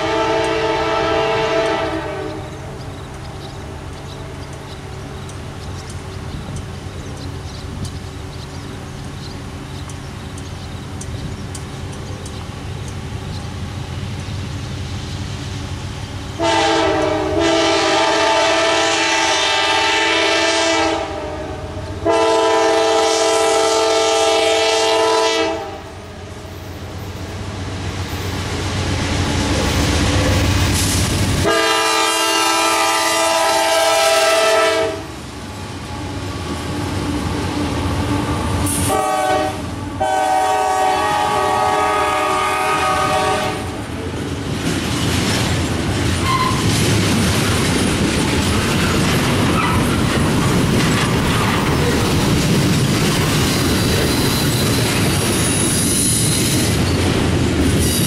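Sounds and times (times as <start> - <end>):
train horn blasts: 0.0 - 2.7, 16.4 - 26.1, 31.4 - 35.2, 38.7 - 43.8, 46.2 - 46.7
locomotive engine rumble: 0.0 - 57.8
train wheels clattering: 26.5 - 33.0, 42.8 - 58.0.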